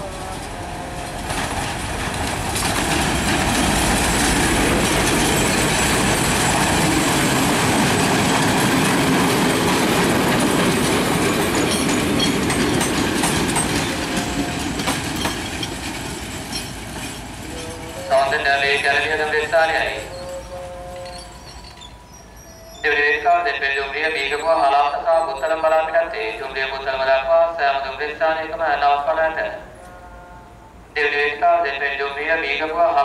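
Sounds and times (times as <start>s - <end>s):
diesel locomotive passing: 0.0s - 33.0s
train wheels clattering over rail joints: 0.1s - 18.0s.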